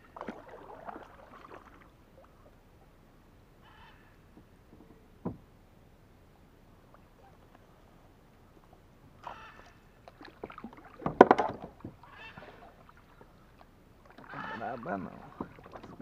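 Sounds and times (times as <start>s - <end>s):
bird honking call: 3.6s - 4.2s, 9.2s - 9.9s, 12.0s - 12.6s, 14.2s - 15.0s.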